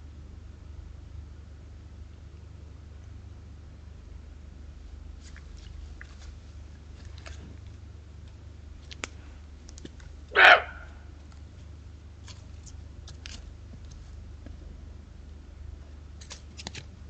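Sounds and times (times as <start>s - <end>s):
low hum: 0.0s - 17.0s
deer barking: 10.3s - 11.2s.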